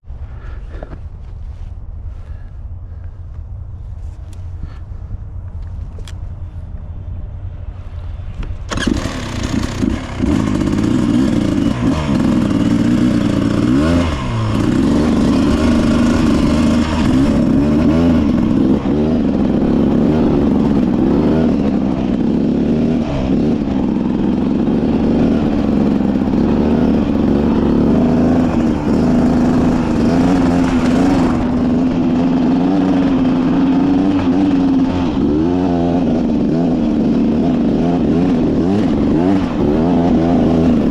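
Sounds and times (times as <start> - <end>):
dirt bike engine revving: 8.7 - 40.9.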